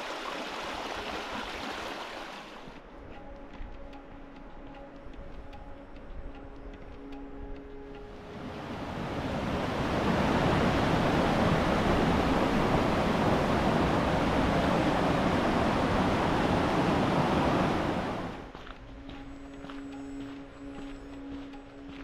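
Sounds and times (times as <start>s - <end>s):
rushing creek water: 0.0s - 2.9s, 8.1s - 18.7s.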